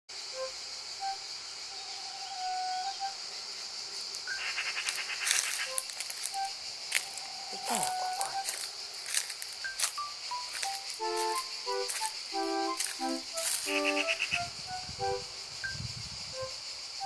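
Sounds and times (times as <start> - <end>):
high insect drone: 0.1 - 17.0
bird calls rattling and whistling: 4.2 - 7.2, 13.6 - 14.6.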